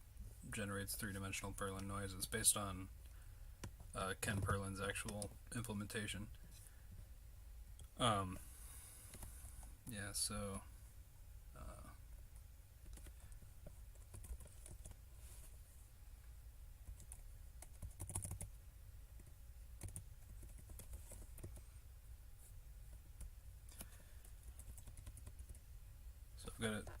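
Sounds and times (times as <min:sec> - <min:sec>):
low steady hum: 0:00.0 - 0:27.0
computer keys clicking: 0:12.8 - 0:15.0, 0:16.8 - 0:18.5, 0:19.2 - 0:21.6, 0:23.2 - 0:25.6.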